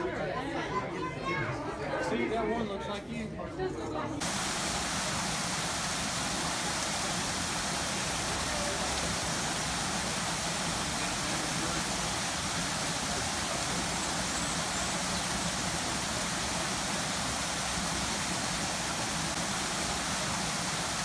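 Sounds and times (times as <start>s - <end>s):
train rumble and hiss: 4.2s - 21.0s.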